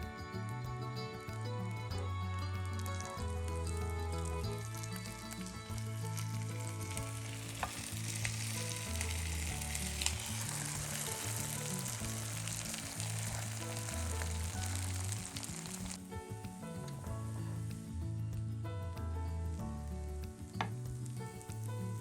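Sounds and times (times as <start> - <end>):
background music: 0.0 - 22.0
food sizzling in a pan: 2.6 - 17.9, 19.9 - 22.0.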